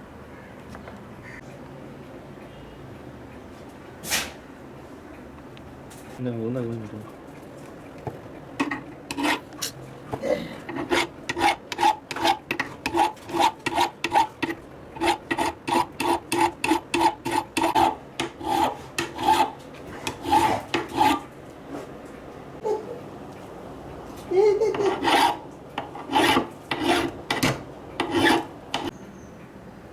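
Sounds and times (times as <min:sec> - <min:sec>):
hand file rasping on metal: 0:08.6 - 0:09.8, 0:10.6 - 0:21.2, 0:24.7 - 0:28.9.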